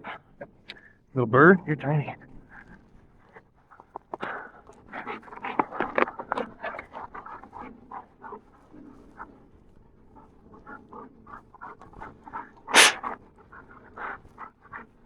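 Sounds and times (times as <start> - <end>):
dog panting: 12.8 - 13.0.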